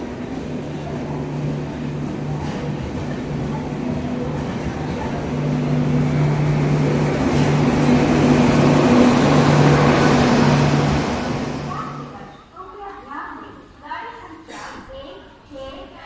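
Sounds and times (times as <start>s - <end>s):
train passing close by: 0.0s - 12.6s.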